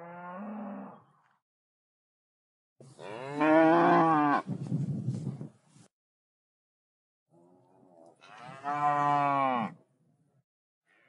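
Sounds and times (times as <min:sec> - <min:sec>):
cattle mooing: 0:00.0 - 0:01.0, 0:03.0 - 0:04.4, 0:08.2 - 0:09.8.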